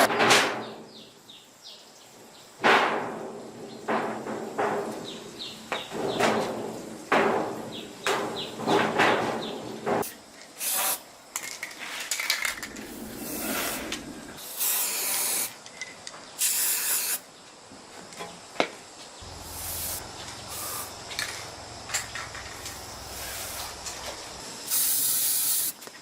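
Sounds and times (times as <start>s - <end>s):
hissing spray bursts: 10.0s - 11.1s, 12.8s - 15.6s, 16.4s - 17.3s, 19.2s - 26.0s.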